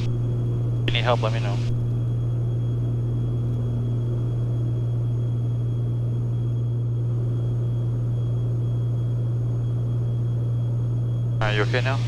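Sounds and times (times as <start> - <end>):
twin propeller plane cabin drone: 0.0 - 12.0.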